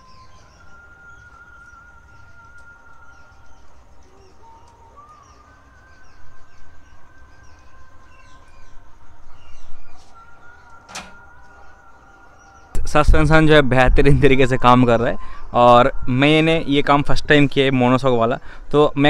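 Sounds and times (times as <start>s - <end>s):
birds chirping: 0.0s - 13.5s.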